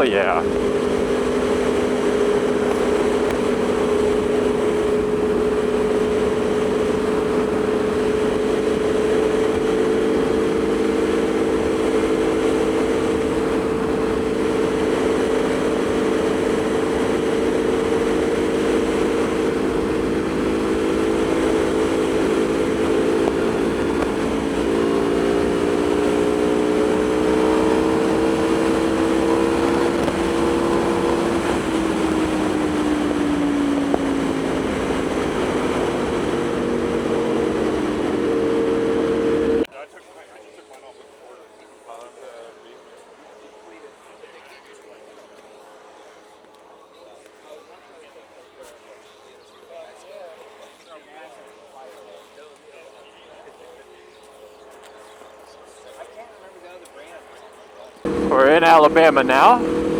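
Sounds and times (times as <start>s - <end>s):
constant rush of noise: 0.0s - 25.8s, 58.1s - 59.9s
motorcycle engine cruising: 0.0s - 39.7s, 58.0s - 59.9s.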